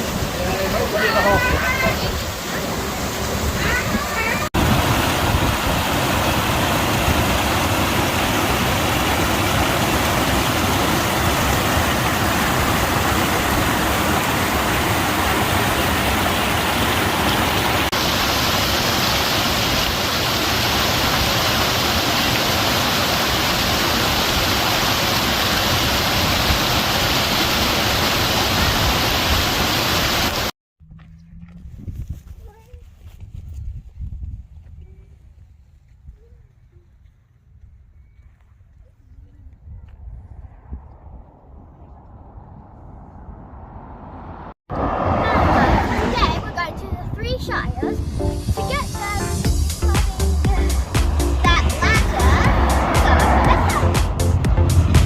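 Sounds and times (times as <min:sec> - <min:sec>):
waterfall rushing water: 0:00.0 - 0:30.5, 0:48.1 - 0:55.0.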